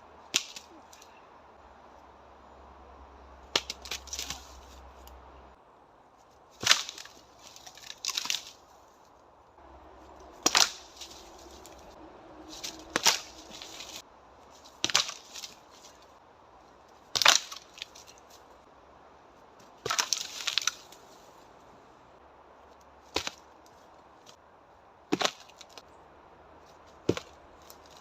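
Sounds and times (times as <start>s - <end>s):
strikes knocking on tree trunks: 0.3s - 0.7s, 3.4s - 4.6s, 6.6s - 8.6s, 9.9s - 14.0s, 14.6s - 16.0s, 17.1s - 18.0s, 19.6s - 20.8s, 23.1s - 23.5s, 25.1s - 25.8s, 26.8s - 28.0s
wood crackling: 3.3s - 5.6s, 6.2s - 18.7s, 19.5s - 24.4s, 25.1s - 26.0s, 26.6s - 28.0s.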